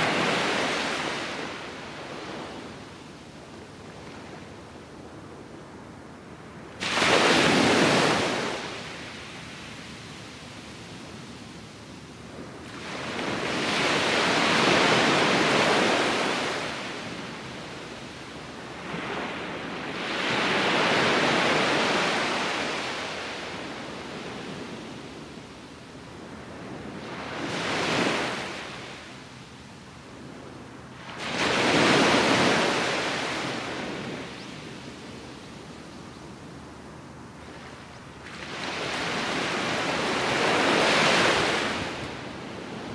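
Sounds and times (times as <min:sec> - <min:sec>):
waves breaking on beach: 0:00.0 - 0:02.8, 0:06.6 - 0:11.5, 0:12.3 - 0:25.7, 0:26.4 - 0:29.4, 0:30.9 - 0:35.4, 0:37.4 - 0:42.9.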